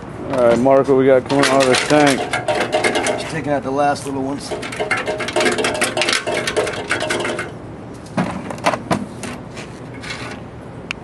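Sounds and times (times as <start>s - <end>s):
screws rattling in metal tank: 0.4s - 7.6s.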